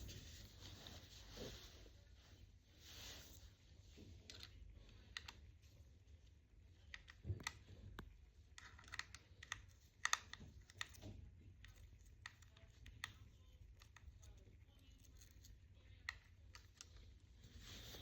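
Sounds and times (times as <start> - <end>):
small clicks and taps: 6.8 - 14.4.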